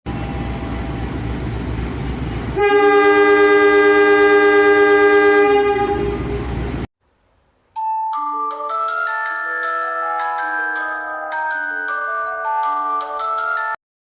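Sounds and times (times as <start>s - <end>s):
train rumbling: 0.1s - 6.9s
two-note train horn: 2.6s - 6.7s.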